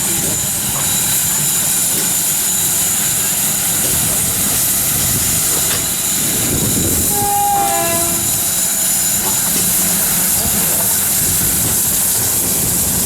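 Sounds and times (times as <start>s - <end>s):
train rumbling past: 0.0s - 13.0s
train horn: 6.9s - 8.6s.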